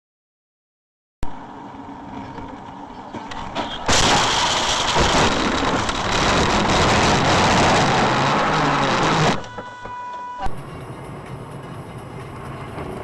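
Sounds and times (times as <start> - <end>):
loud rushing noise: 3.6 - 9.5.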